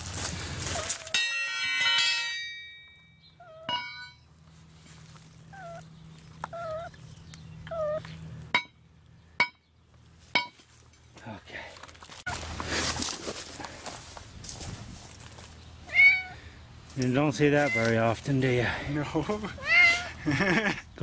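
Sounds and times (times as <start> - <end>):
metal pipe clanging: 1.1 - 3.1, 3.7 - 4.2, 8.5 - 8.8, 9.4 - 9.6, 10.4 - 11.1
sharp metallic knocks: 1.1 - 3.1, 3.7 - 4.2, 8.5 - 8.8, 9.4 - 9.7, 10.3 - 10.6
cat meowing weakly: 15.9 - 16.4, 17.6 - 17.9, 19.6 - 20.1.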